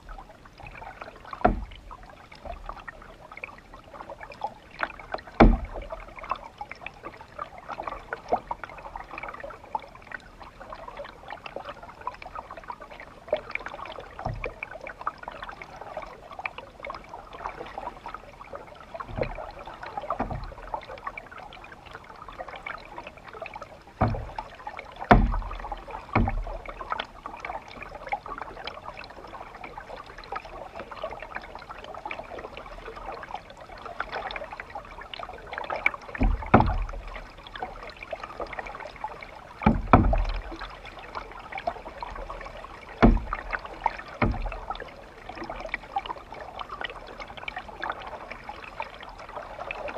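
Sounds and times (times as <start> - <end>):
water splashing and trickling: 0.0 - 49.9
low thumps: 43.0 - 43.5, 44.2 - 44.6.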